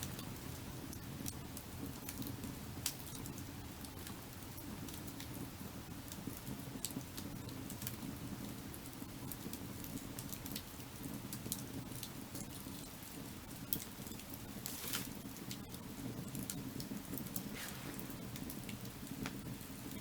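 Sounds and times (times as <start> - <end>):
wood fire crackling: 0.0 - 20.0
fire low rushing: 13.0 - 20.0.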